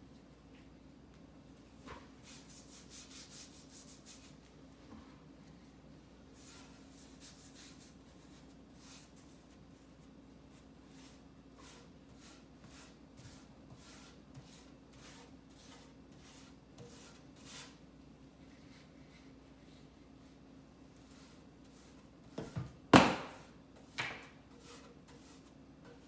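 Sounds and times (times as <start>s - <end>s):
paintbrush strokes on wood: 2.2s - 4.5s, 6.3s - 17.8s, 18.4s - 22.6s, 23.4s - 26.0s.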